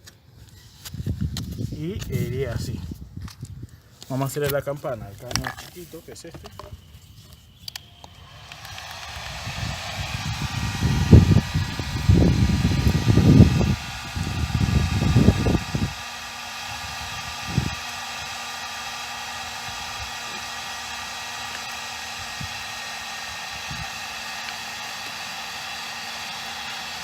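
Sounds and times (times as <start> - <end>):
heat gun blowing air: 5.4 - 27.0
low rumbling: 6.8 - 17.8.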